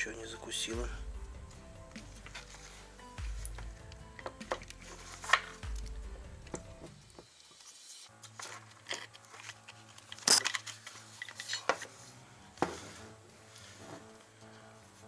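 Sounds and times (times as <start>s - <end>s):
quiet background music: 0.0s - 15.0s
tool parts clicking and knocking: 1.3s - 7.4s, 8.5s - 12.0s.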